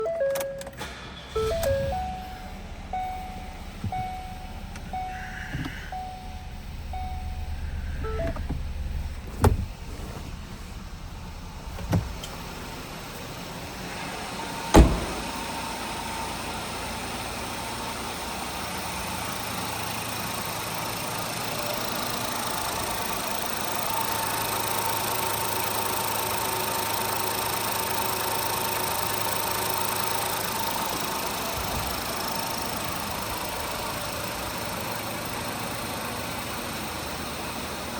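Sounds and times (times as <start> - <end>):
car engine idling: 0.0 - 37.9
faint whine: 1.3 - 14.0
sharp thump: 14.7 - 15.4.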